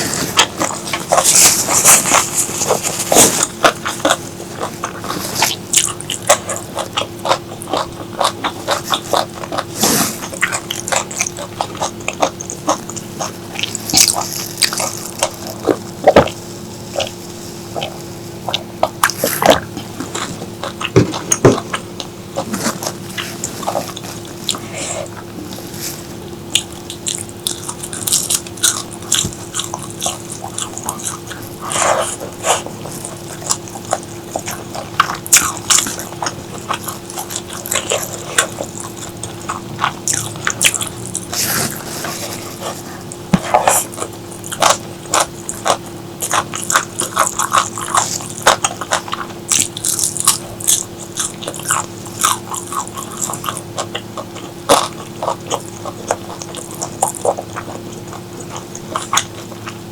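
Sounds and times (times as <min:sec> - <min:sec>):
person chewing: 0:00.0 - 0:59.9.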